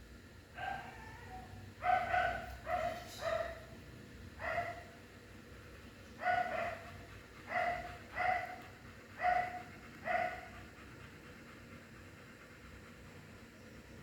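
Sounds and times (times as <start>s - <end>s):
dog barking: 0.6s - 3.7s, 4.4s - 5.0s, 6.2s - 10.5s.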